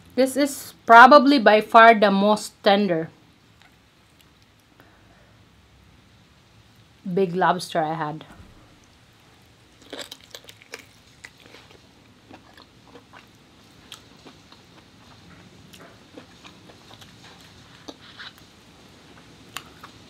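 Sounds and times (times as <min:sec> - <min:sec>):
person chewing and lip smacking: 0:03.6 - 0:04.7, 0:09.8 - 0:18.5, 0:19.5 - 0:20.0.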